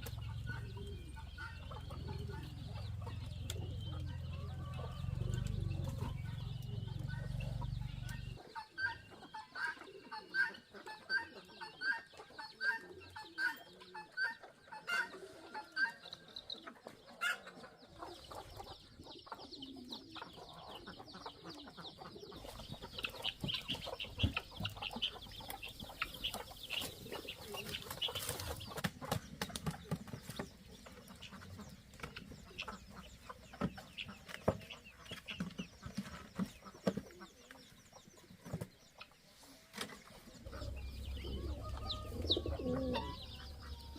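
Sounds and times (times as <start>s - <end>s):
chickens clucking: 0.0s - 43.9s
low rumble: 40.4s - 43.9s.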